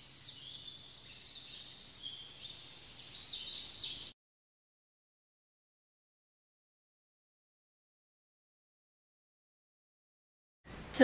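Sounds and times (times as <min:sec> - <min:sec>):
birds chirping and trilling: 0:00.0 - 0:04.2.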